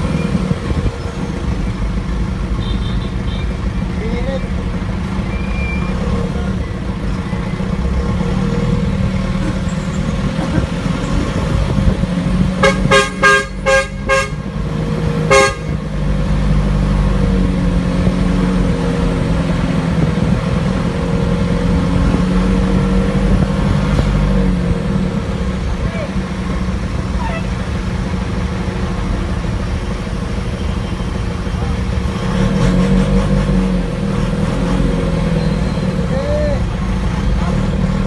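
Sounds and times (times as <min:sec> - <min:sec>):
vehicle engine running: 0:00.0 - 0:38.0
vehicle horn short toots: 0:02.6 - 0:03.6, 0:12.6 - 0:14.6, 0:15.3 - 0:15.8.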